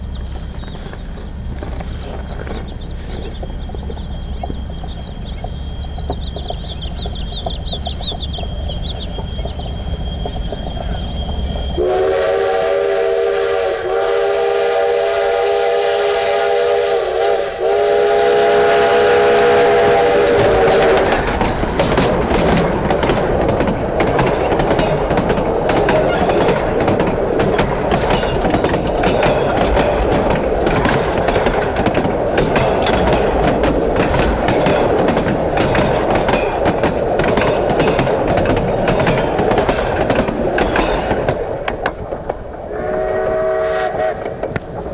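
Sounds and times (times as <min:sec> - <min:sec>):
train wheels clicking over rails: 0:00.0 - 0:44.9
steam locomotive chime whistle: 0:08.4 - 0:21.2, 0:42.7 - 0:44.3.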